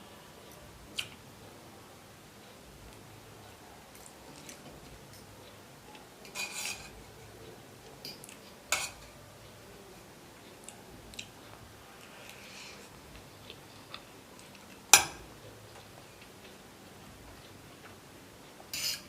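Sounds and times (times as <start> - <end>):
cutlery clink: 6.2 - 7.0, 8.0 - 9.2, 14.8 - 15.2, 18.7 - 19.0
cutlery scraping a plate: 6.2 - 7.0, 8.0 - 9.2, 18.7 - 19.0.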